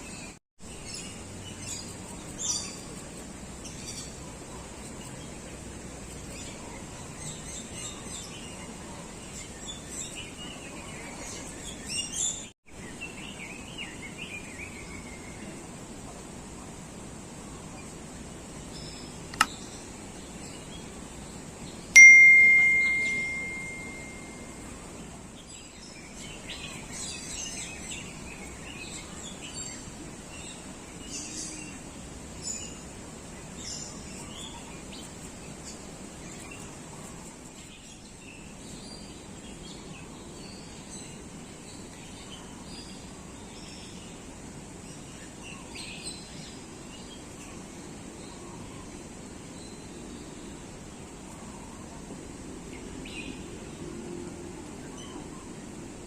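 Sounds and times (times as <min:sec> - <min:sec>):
birds chirping: 0:18.6 - 0:24.5
loud ding: 0:22.0 - 0:24.4.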